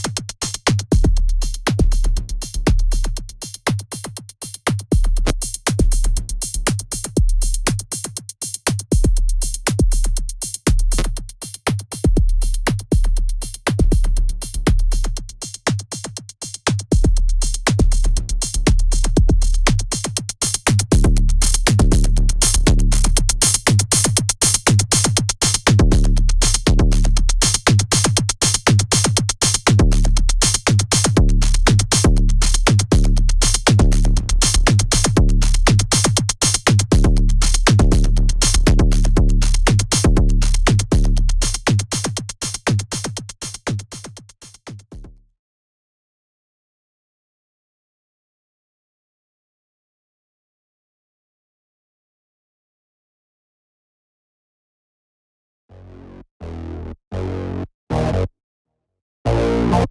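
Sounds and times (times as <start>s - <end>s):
drum machine beat: 0.0s - 45.1s
deep pulsing bass: 17.0s - 19.8s, 20.9s - 24.0s, 25.8s - 27.5s, 29.7s - 36.1s, 36.9s - 41.7s, 59.3s - 59.9s.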